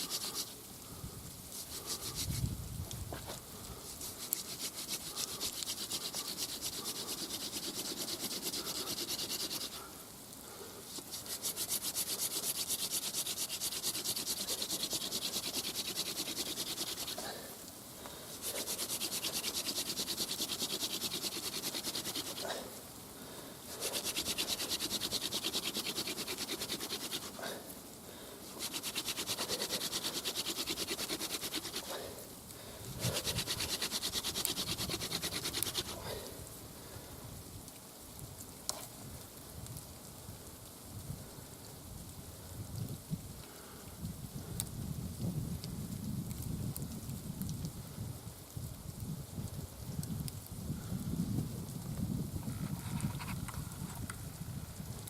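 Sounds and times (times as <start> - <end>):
wood-on-wood rubbing: 0.0 - 0.6, 1.5 - 2.5, 3.1 - 9.8, 10.9 - 17.5, 18.3 - 22.7, 23.7 - 27.6, 28.5 - 32.0, 33.0 - 36.2, 52.5 - 54.0.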